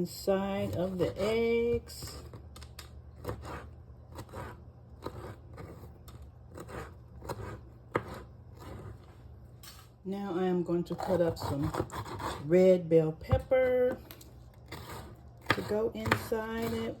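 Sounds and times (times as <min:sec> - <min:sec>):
knife slicing tomato on board: 0:00.6 - 0:09.1, 0:11.0 - 0:12.5, 0:14.6 - 0:17.0.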